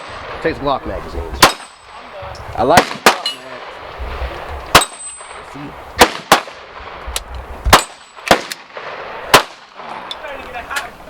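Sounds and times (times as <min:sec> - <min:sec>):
sharp gunshots: 0:01.4 - 0:07.0, 0:07.7 - 0:10.1.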